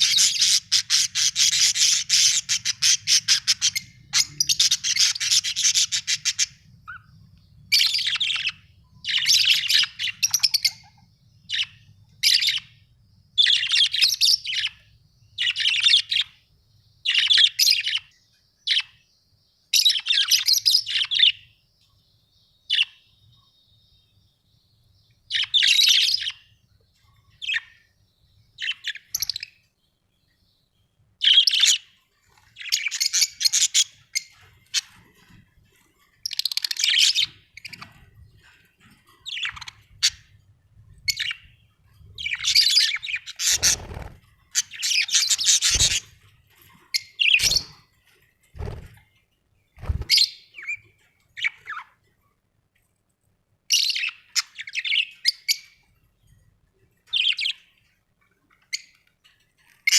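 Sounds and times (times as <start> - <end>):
budgerigars chirping: 0.0 - 7.1, 7.7 - 12.7, 28.6 - 29.6, 32.6 - 35.0, 39.2 - 40.3, 41.0 - 41.6, 42.2 - 46.2, 47.0 - 47.9, 53.8 - 55.8.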